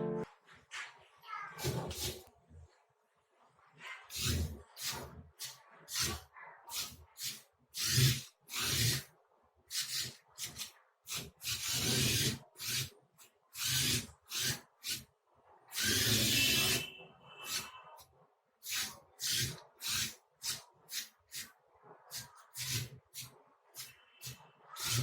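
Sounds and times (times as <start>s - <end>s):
small electric gear motors running: 5.9s - 9.0s, 9.7s - 12.9s, 13.6s - 15.0s, 15.8s - 16.8s, 18.6s - 21.4s, 22.1s - 25.0s.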